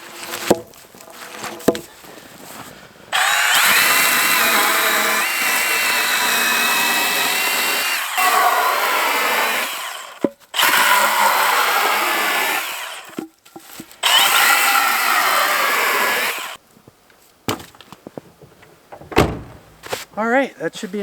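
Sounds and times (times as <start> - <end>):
saw cutting wood: 0.0 - 1.9, 3.1 - 16.6
light knocks of wood: 17.5 - 20.0.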